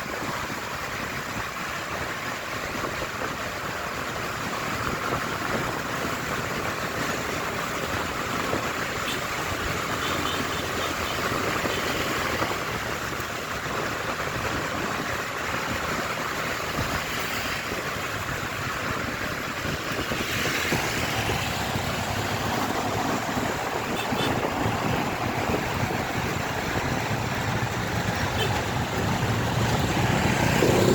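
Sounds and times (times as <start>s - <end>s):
road noise: 0.0s - 30.9s
wind rushing: 11.3s - 30.9s
motorcycle engine running: 18.2s - 30.9s.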